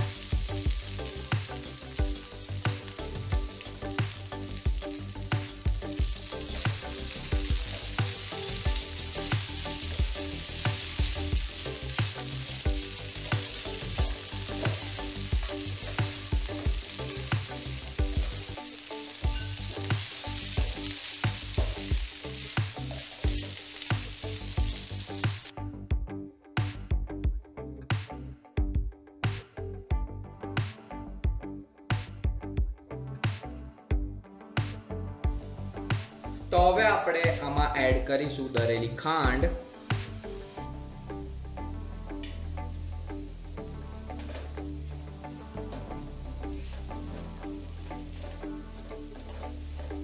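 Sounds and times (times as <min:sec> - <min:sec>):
food sizzling in hot oil: 0:00.0 - 0:25.5, 0:39.5 - 0:40.6
background music with steady beat: 0:00.0 - 0:50.0.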